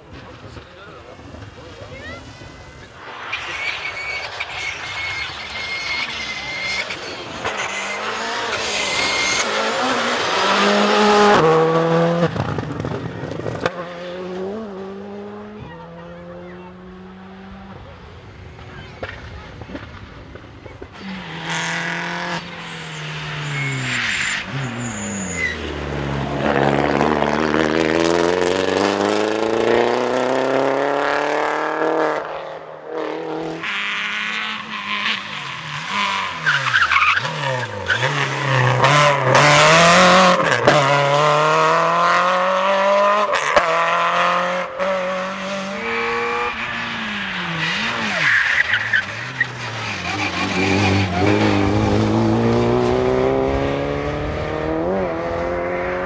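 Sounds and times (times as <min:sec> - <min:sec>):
rally car engines accelerating: 0:00.1 - 0:56.0
tyres squealing on tarmac: 0:01.9 - 0:10.2, 0:22.5 - 0:25.9, 0:34.6 - 0:38.9, 0:46.6 - 0:51.9.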